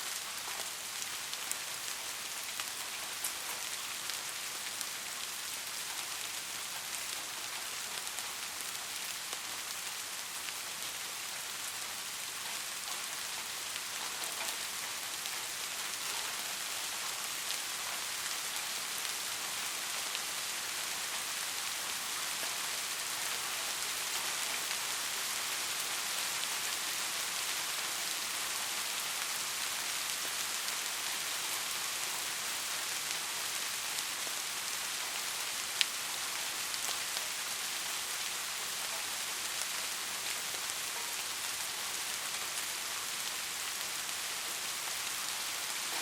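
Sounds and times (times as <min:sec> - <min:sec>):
steady rain falling: 0:00.0 - 0:46.0.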